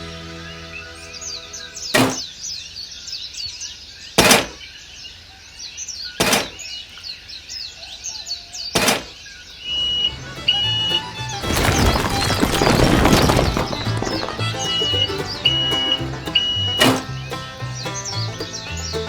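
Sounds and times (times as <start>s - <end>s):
small birds chirping: 0.3s - 19.0s
sharp knocks: 2.0s - 2.3s, 4.2s - 4.6s, 6.2s - 6.6s, 8.8s - 9.2s.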